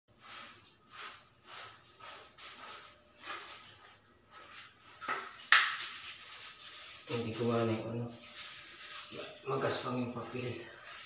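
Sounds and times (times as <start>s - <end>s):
rubbing on hard surface: 0.2s - 11.0s.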